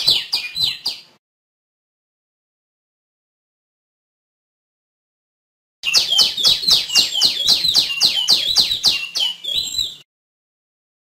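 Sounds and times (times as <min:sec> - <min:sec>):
bird calling descending notes: 0:05.8 - 0:10.0.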